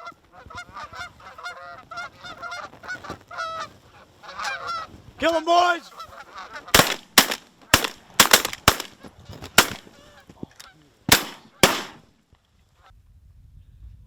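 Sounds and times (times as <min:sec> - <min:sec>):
shotgun volley: 0:06.8 - 0:09.0, 0:09.6 - 0:09.9, 0:11.1 - 0:12.0.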